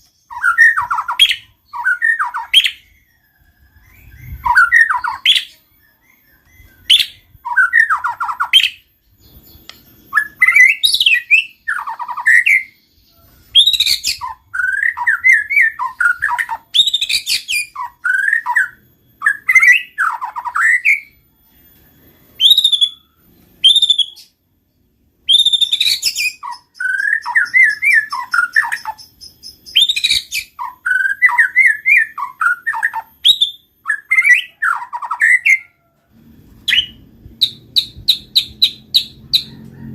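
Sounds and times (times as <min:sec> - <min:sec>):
songbird singing whistles: 0:00.0 - 0:24.4, 0:25.2 - 0:39.9
canary trilling: 0:25.2 - 0:35.9, 0:36.6 - 0:39.9.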